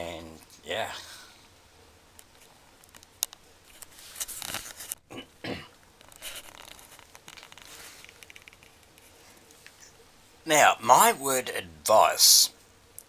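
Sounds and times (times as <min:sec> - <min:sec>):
faint rustling and crinkling: 0:00.1 - 0:05.1, 0:05.8 - 0:10.1.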